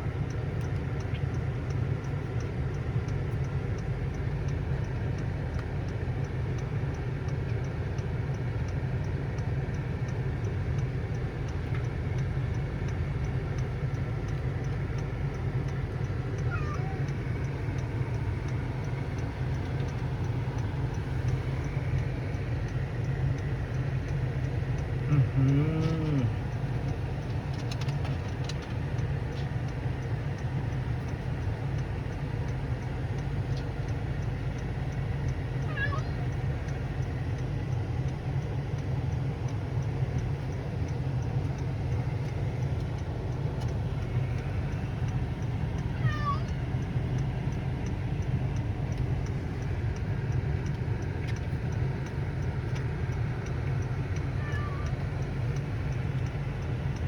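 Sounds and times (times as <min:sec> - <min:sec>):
cat meowing: 0:16.5 - 0:17.1, 0:35.7 - 0:36.3, 0:45.9 - 0:46.6, 0:54.4 - 0:55.0.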